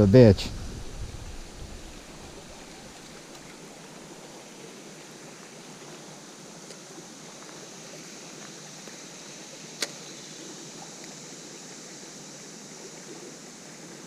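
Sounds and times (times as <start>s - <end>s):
creek water flowing: 0.2s - 14.0s
sharp click: 9.8s - 10.0s.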